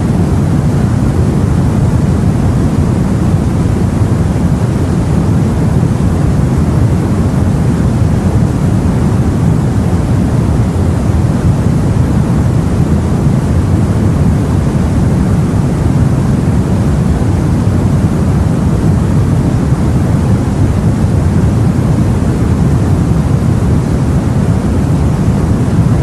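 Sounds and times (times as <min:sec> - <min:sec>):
wind rushing: 0:00.0 - 0:26.0.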